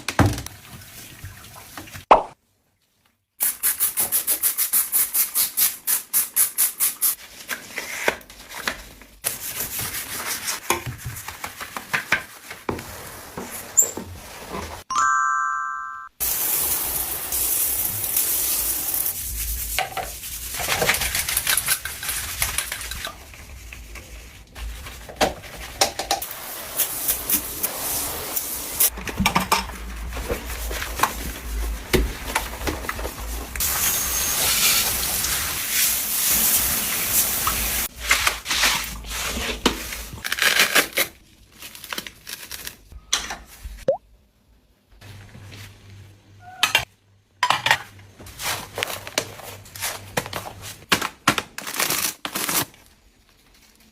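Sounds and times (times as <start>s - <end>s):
rustling and crinkling: 28.9s - 33.6s, 48.2s - 53.9s.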